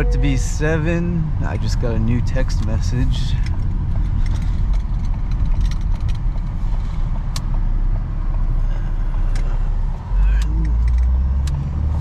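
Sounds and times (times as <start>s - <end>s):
truck engine and road rumble: 0.0s - 12.0s
sharp clicks and rattles: 1.3s - 7.6s, 9.3s - 11.6s.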